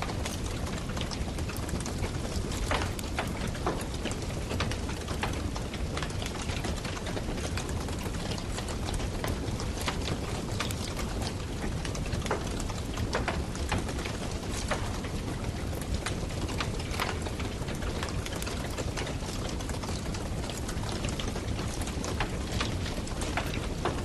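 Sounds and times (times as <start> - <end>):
burning wood crackling and popping: 0.0 - 24.0
campfire low rush: 0.0 - 24.0.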